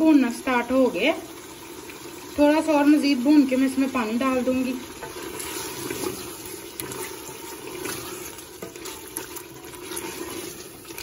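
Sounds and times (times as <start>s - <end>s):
chicken sizzling in hot oil: 0.0s - 11.0s
wooden spoon scraping a pot: 5.0s - 11.0s.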